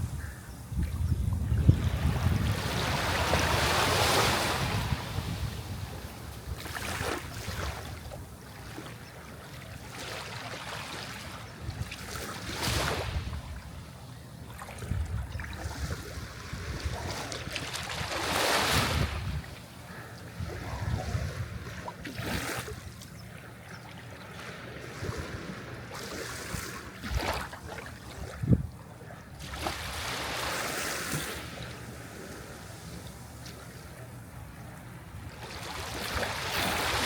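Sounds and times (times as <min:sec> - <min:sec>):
sea waves washing onto shore: 0:01.8 - 0:08.7.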